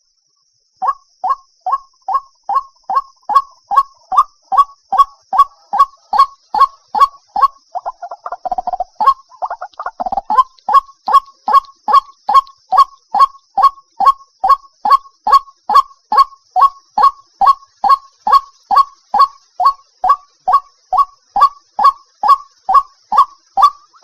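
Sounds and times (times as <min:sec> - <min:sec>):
waterhen honking call: 0:02.5 - 0:24.0.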